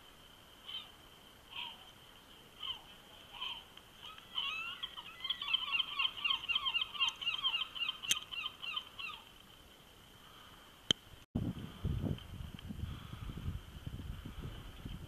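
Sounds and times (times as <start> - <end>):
birds calling: 0.6 - 1.9, 2.6 - 9.5.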